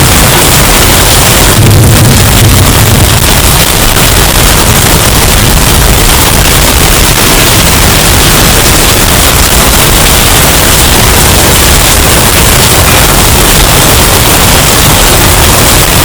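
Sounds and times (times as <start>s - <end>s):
distorted hurricane wind: 0.0s - 16.0s.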